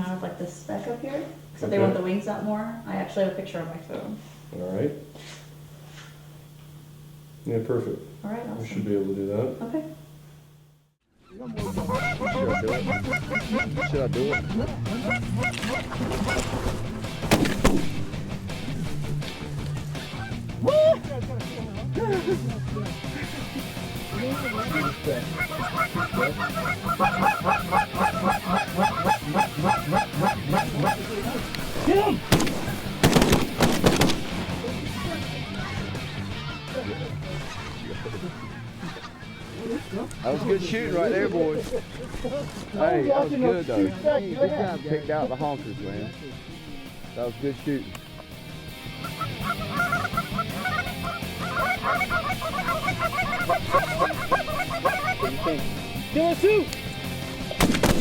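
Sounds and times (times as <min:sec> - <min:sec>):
geese honking: 0:11.3 - 0:42.6, 0:44.6 - 0:57.1.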